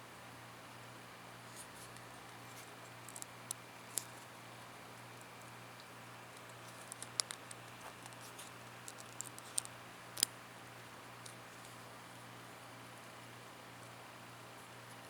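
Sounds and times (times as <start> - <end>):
small metallic clicks and scratches: 1.5 - 4.3, 5.8 - 10.4.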